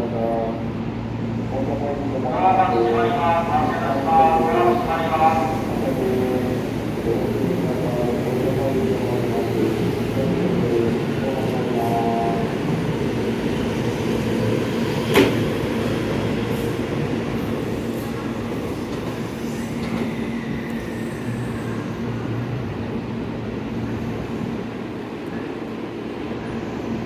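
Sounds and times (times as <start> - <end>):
train wheels and motors rumbling: 3.2 - 23.9.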